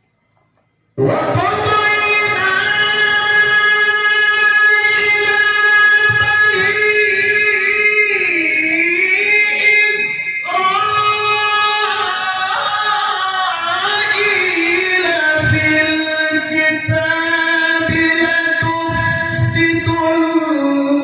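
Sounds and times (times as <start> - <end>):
man reciting in melodic style: 1.0 - 21.0.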